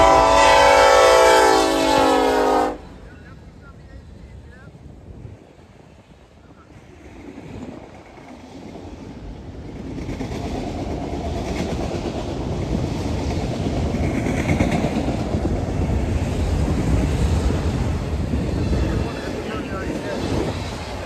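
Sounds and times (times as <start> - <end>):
freight train wheels clattering: 7.0 - 21.0.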